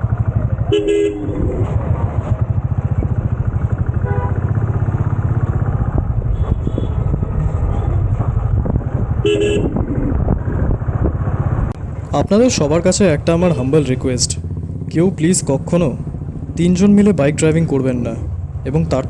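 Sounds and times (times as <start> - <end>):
motorcycle engine throbbing: 0.0 - 19.0
horn honk: 0.6 - 1.7, 3.9 - 4.6, 6.2 - 8.0, 9.2 - 9.9.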